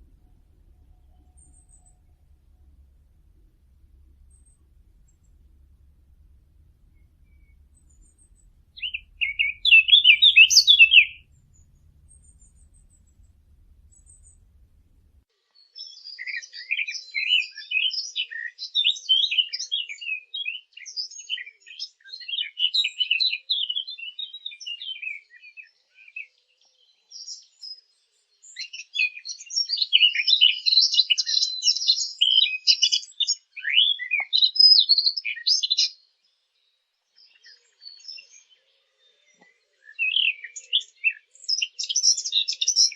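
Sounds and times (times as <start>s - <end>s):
birds chirping: 0.0s - 15.2s.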